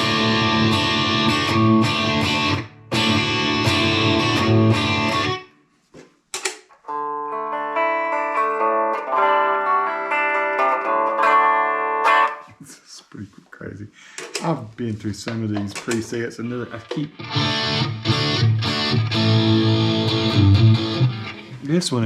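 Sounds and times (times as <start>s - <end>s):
overdriven electric guitar chords: 0.0s - 5.5s, 6.8s - 12.5s, 17.0s - 21.7s
sustained guitar notes: 0.0s - 5.5s, 6.9s - 12.6s, 16.5s - 22.0s
clicks: 14.1s - 14.6s, 15.2s - 17.2s.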